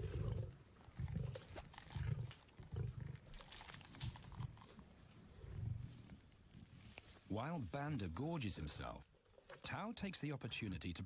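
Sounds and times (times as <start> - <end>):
lions growling: 0.0 - 3.6.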